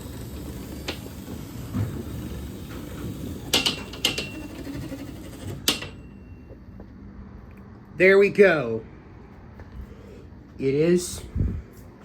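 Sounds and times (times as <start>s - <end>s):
garage door opener humming: 0.0s - 6.8s.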